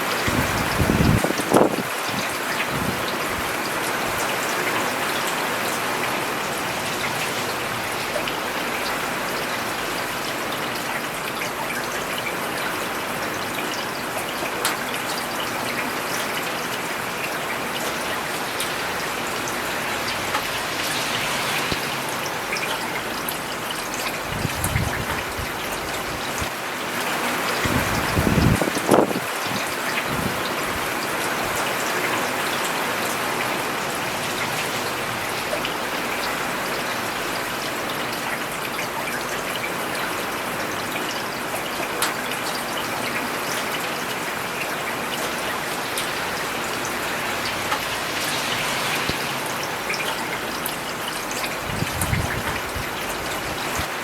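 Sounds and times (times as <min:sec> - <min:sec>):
rain falling on a road: 0:00.0 - 0:54.0.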